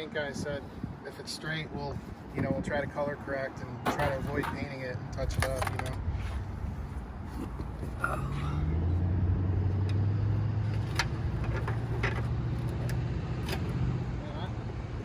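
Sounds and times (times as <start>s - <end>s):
vehicle engine humming: 5.1s - 15.0s.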